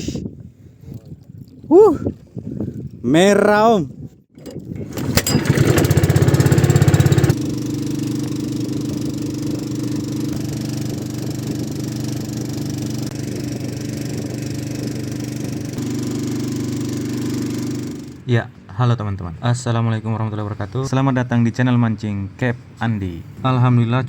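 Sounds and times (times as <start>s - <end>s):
boat engine running: 4.5s - 18.3s.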